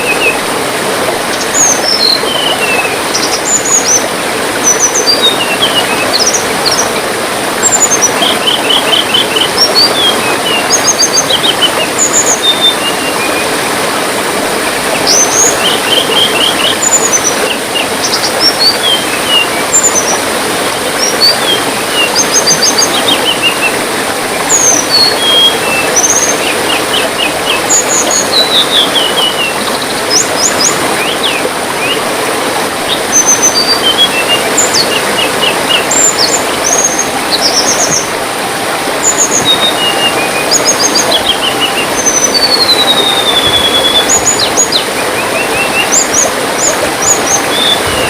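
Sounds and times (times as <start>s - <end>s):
trickling water: 0.0s - 48.0s
songbird chirping and trilling: 24.4s - 32.0s, 32.9s - 48.0s.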